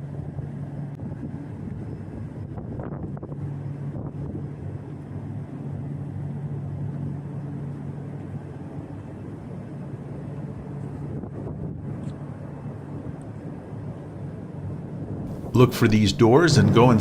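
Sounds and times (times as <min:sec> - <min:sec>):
wind on microphone: 0:00.0 - 0:05.5, 0:10.4 - 0:14.0
ship machinery humming: 0:15.3 - 0:17.0.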